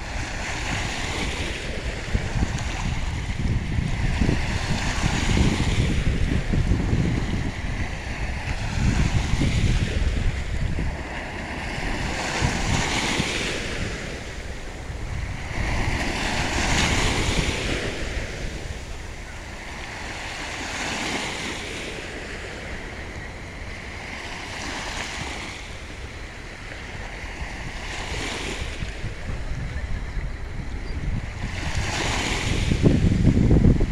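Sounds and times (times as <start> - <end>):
sea waves breaking: 0.0 - 33.9
wind on microphone: 0.0 - 33.9.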